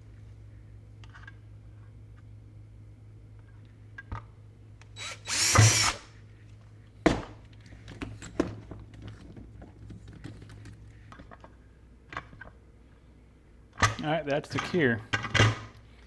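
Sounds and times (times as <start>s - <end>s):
electric drill burst: 5.0s - 6.1s.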